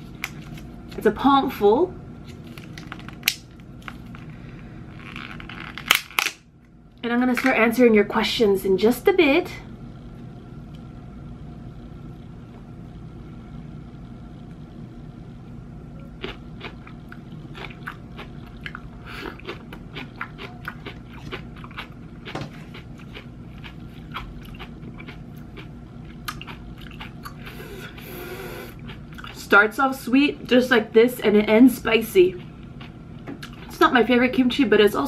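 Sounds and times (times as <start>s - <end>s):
steady low hum: 0.0s - 35.0s
crunchy chewing: 16.0s - 29.4s.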